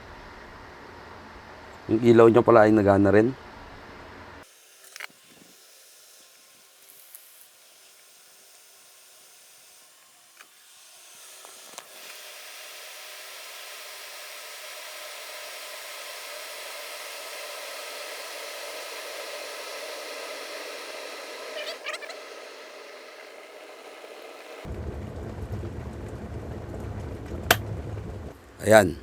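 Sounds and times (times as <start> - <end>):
kettle heating water hissing: 4.4 - 24.7.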